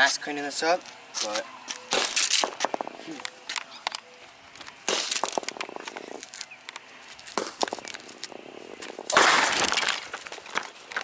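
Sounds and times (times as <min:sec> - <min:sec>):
phone battery crackling: 0:01.7 - 0:11.0.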